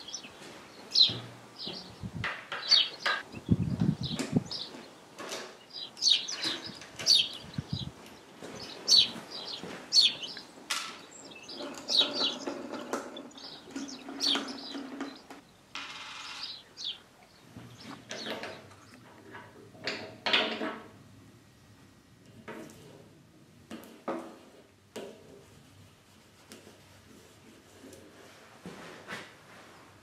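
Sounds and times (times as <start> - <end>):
small bird chirping: 5.6 - 15.6.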